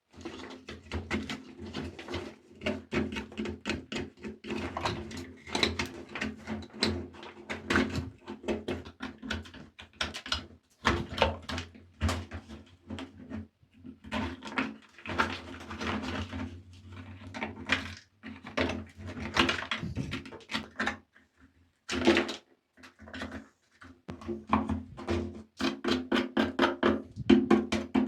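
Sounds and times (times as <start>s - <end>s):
scrubbing toy motorcycle: 18.4s - 20.8s.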